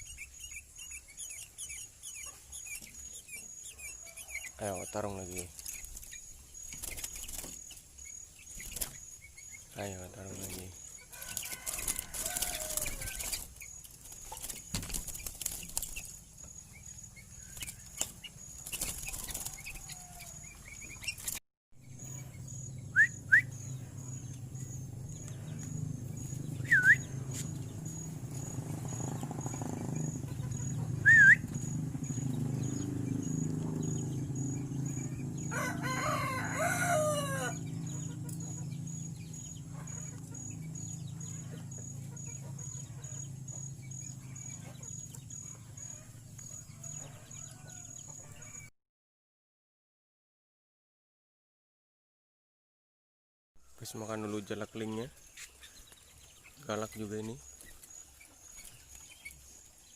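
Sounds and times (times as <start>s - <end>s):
rooster crowing: 11.1s - 13.4s, 19.1s - 20.6s, 34.9s - 38.2s, 45.7s - 48.7s
steady low hum: 21.8s - 35.8s
bird whistled calls: 22.9s - 23.7s, 26.6s - 27.1s, 31.0s - 31.7s.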